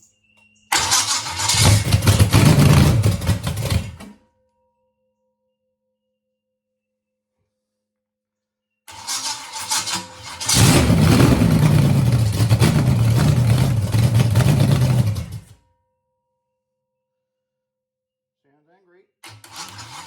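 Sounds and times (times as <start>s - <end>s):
starter motor cranking: 0.7s - 4.1s, 8.9s - 15.5s, 19.3s - 20.0s
engine running loud: 0.8s - 4.0s, 10.4s - 15.5s.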